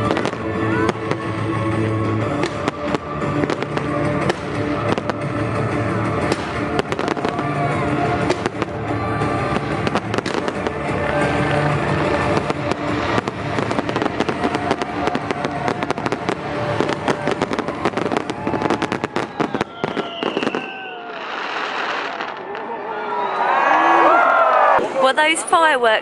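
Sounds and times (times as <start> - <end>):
loud show music: 0.0 - 20.5
fireworks cracking and banging: 0.0 - 22.8.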